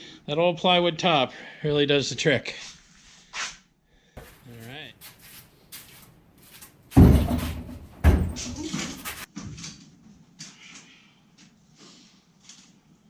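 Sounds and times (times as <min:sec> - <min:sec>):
heavy thumps: 0:04.2 - 0:09.3
short rattle: 0:05.8 - 0:09.3.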